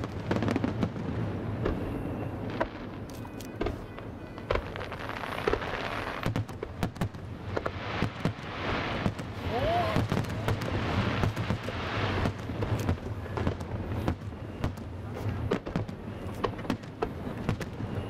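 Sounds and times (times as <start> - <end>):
fireworks bangs and crackles: 0.0 - 18.0
fireworks hiss: 0.0 - 18.0.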